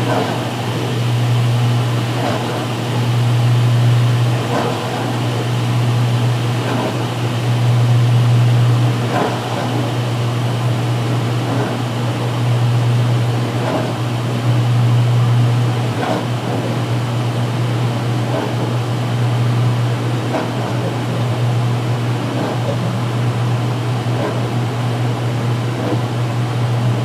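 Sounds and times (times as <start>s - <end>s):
washing machine motor hum: 0.0s - 27.0s.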